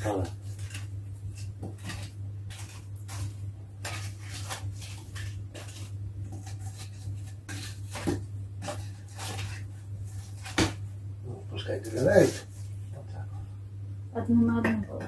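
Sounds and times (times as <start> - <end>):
wood fire crackling: 0.0 - 12.8
steady low hum: 0.0 - 15.0.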